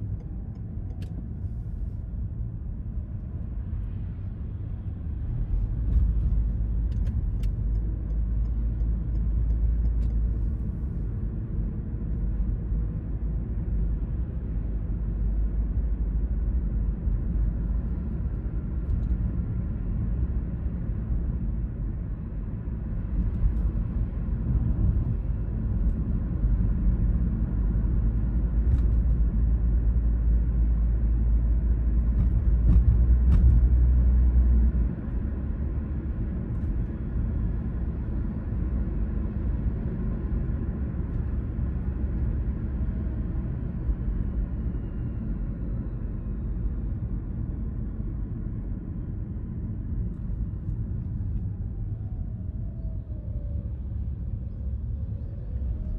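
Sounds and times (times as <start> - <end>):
car engine and tyre rumble: 0.0 - 55.9.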